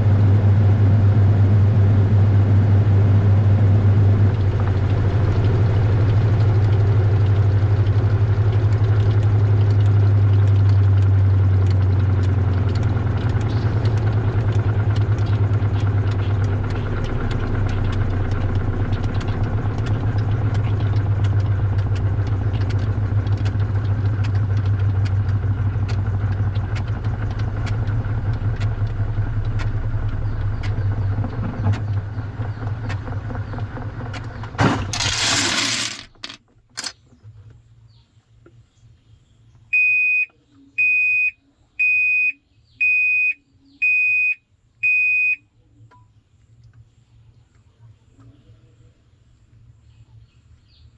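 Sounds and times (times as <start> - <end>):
washing machine motor hum: 0.0 - 36.4.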